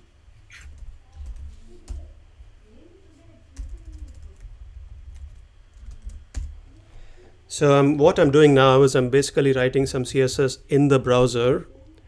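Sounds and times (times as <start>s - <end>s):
computer keyboard typing: 0.5s - 2.1s, 3.5s - 6.9s.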